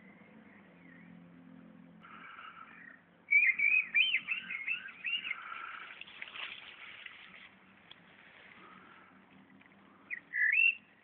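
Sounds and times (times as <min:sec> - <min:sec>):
faint bird calls: 0:02.0 - 0:07.4, 0:08.2 - 0:11.0
songbird singing whistled notes: 0:02.8 - 0:05.9, 0:10.1 - 0:11.0.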